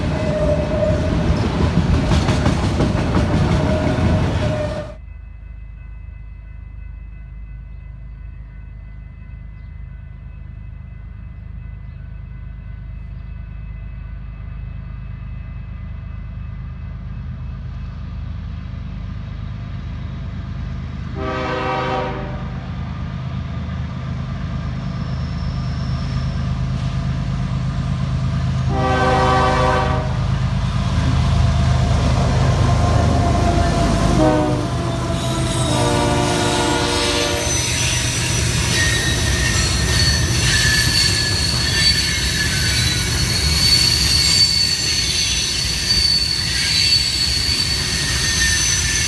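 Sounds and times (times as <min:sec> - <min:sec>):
diesel locomotive engine rumble: 0:00.0 - 0:49.0
train wheel and rail noise: 0:00.0 - 0:49.0
train horn blasts: 0:21.1 - 0:22.7, 0:28.6 - 0:30.4, 0:33.0 - 0:42.2.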